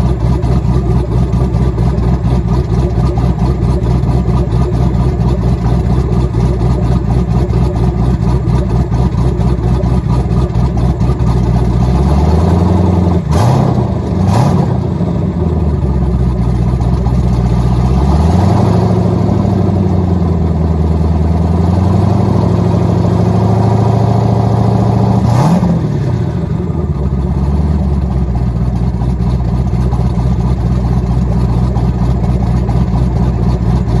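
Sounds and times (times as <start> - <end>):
engine revving: 0.0 - 15.8, 17.4 - 28.1
v eight engine idling with choppy lope: 0.0 - 34.0.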